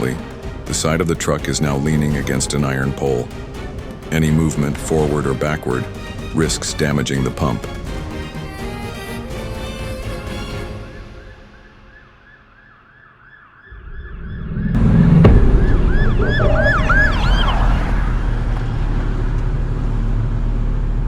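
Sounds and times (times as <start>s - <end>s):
siren yelping: 9.8s - 19.0s
low vehicle engine rumble: 13.9s - 21.0s
thud: 14.7s - 19.1s.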